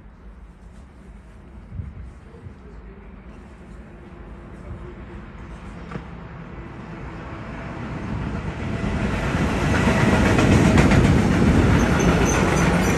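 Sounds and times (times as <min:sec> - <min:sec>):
train rumble: 0:00.0 - 0:12.9
train wheels clattering over rails: 0:08.6 - 0:12.9.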